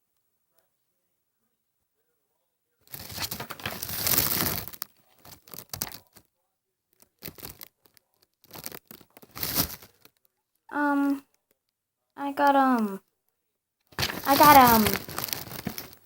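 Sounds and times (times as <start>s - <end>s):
plastic packaging crinkling: 2.9s - 6.2s, 7.0s - 10.2s, 14.0s - 16.0s.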